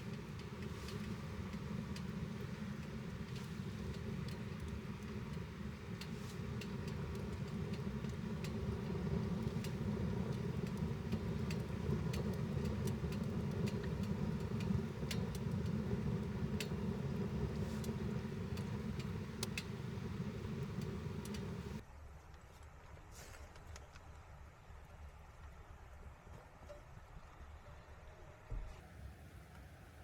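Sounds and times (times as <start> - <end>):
low fire rumble: 0.0 - 21.8
wood stove crackling: 0.0 - 21.8.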